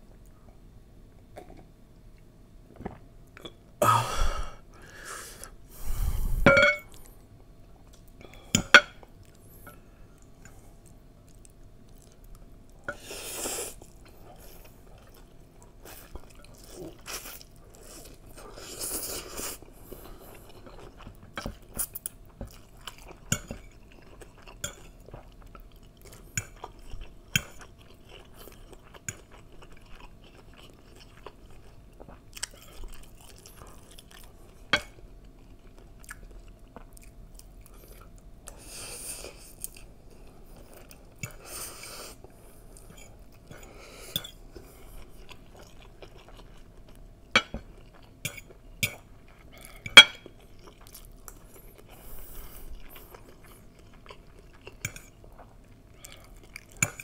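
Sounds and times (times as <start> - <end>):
chewing noodles: 10.2 - 57.0.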